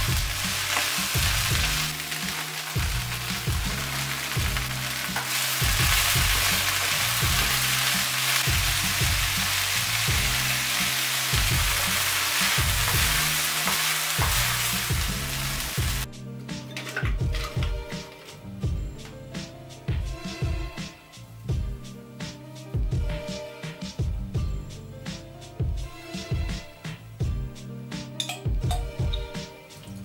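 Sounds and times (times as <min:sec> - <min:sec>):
vegetables sizzling in frying pan: 0:00.0 - 0:16.1
background music with steady beat: 0:00.0 - 0:30.0.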